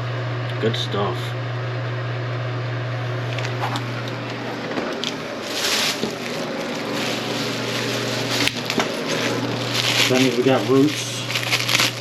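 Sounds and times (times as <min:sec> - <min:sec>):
drain auger motor humming: 0:03.1 - 0:12.0
wet scraping and squishing: 0:05.0 - 0:12.0.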